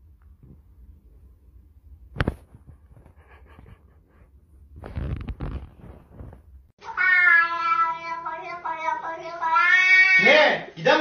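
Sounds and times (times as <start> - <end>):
low rustling and handling noise: 2.1 - 6.7
cat meowing loudly: 6.8 - 8.2, 9.4 - 10.3.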